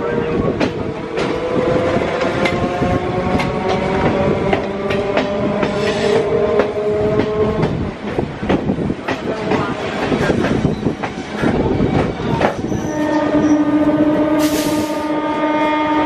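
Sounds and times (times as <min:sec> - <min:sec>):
train wheels clicking over rail joints: 0:00.5 - 0:15.0
train motor whine: 0:12.1 - 0:16.0.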